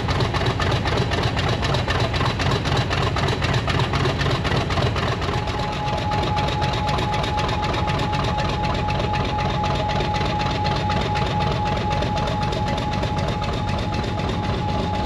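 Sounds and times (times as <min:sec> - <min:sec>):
locomotive engine idling: 0:00.0 - 0:15.0
thin steady whine: 0:03.2 - 0:15.0.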